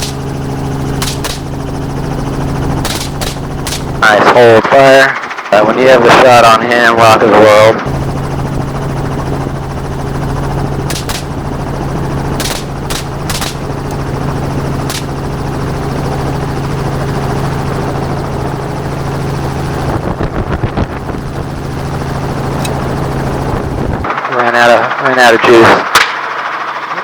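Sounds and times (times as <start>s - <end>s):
gunshots: 0.0s - 1.8s, 2.8s - 4.1s, 10.8s - 11.6s, 12.4s - 14.0s, 14.8s - 15.2s
helicopter running: 0.0s - 27.0s.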